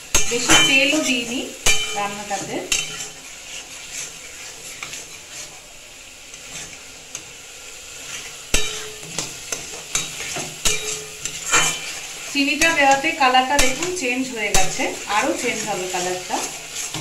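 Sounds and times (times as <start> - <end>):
food sizzling in a pan: 0.0 - 17.0
metal spatula scraping pan: 0.0 - 17.0.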